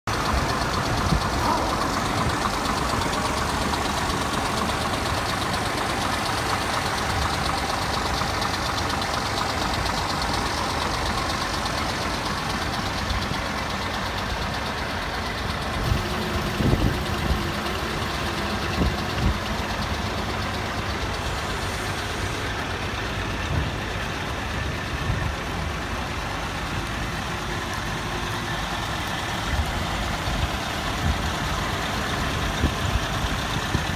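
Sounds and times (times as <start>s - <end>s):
truck diesel engine idling: 0.0s - 33.9s.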